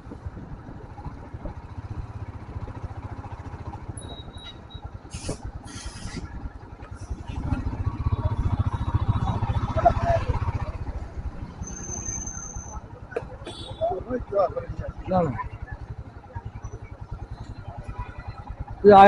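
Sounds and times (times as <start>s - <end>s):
short hissing bursts: 5.1s - 6.2s
motorcycle engine thumping: 12.9s - 15.1s.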